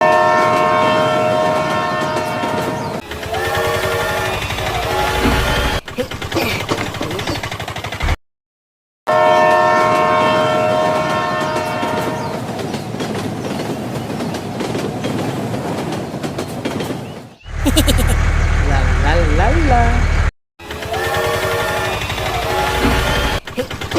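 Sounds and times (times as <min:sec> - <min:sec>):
train horn chord: 0:00.0 - 0:05.8, 0:09.1 - 0:12.3, 0:20.8 - 0:23.4
train rumbling on rails: 0:00.0 - 0:08.2, 0:09.1 - 0:23.9.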